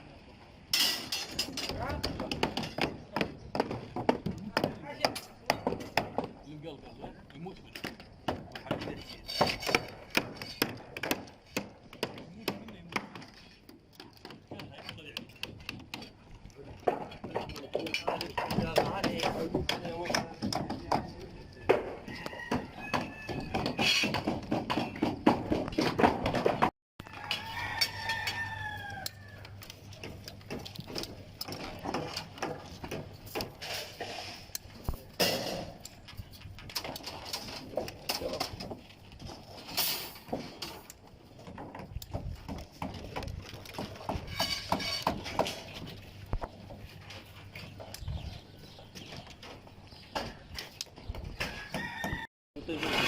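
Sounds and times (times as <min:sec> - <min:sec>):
rooster crowing: 0:21.5 - 0:23.8, 0:27.0 - 0:29.5, 0:51.5 - 0:52.3.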